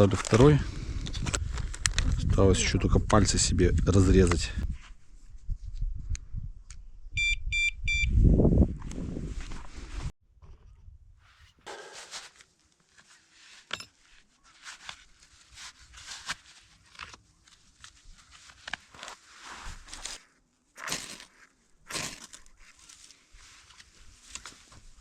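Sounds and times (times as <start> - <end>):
crunching rustling and tearing: 15.4 - 24.7.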